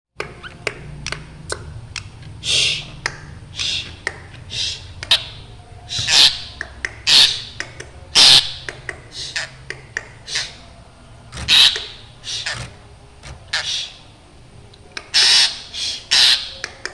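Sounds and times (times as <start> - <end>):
bird harsh rasping calls: 3.5 - 7.6, 8.2 - 9.7, 11.3 - 14.1, 15.1 - 16.6.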